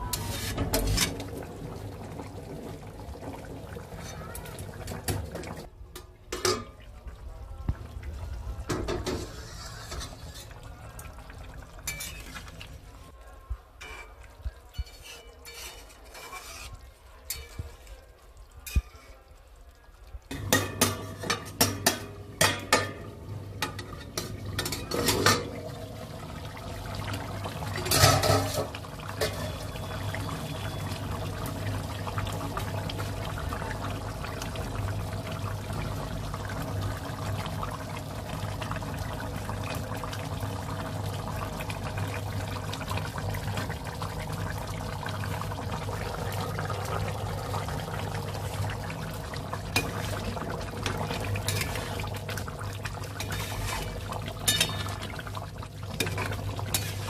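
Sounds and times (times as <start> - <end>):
metal utensil scraping pot: 0.0 - 1.3, 8.7 - 10.7, 11.8 - 12.6, 13.8 - 17.9, 20.3 - 23.0, 23.6 - 25.6, 27.7 - 29.8, 50.8 - 52.1, 53.1 - 55.2, 56.0 - 57.0
cooking hiss: 8.7 - 11.1, 20.3 - 57.0.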